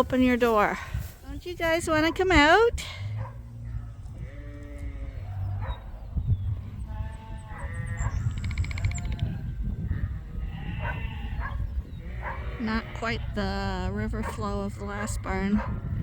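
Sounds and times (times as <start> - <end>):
sheep bleating: 4.1 - 5.2, 10.3 - 11.4, 12.0 - 13.8.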